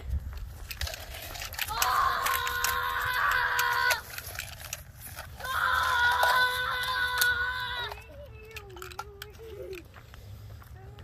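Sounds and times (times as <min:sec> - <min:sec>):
child yelling: 0:01.7 - 0:04.1, 0:05.4 - 0:08.6.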